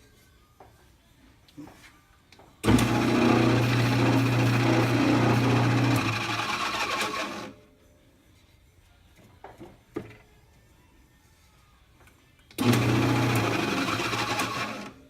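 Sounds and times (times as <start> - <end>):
lathe humming: 2.6 - 7.5, 12.6 - 14.9
drill bit boring into wood: 2.7 - 7.5, 12.6 - 14.9.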